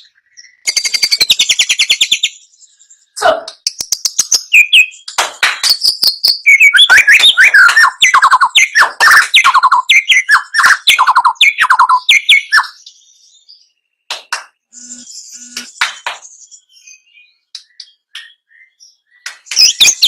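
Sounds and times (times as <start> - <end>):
songbird singing: 0.0 - 20.0.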